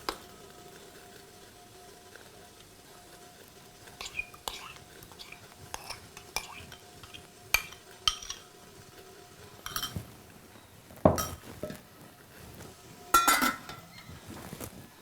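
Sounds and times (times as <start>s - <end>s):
metal utensils clinking and clattering: 4.0s - 8.6s, 9.6s - 10.2s, 11.1s - 11.8s, 13.1s - 14.3s.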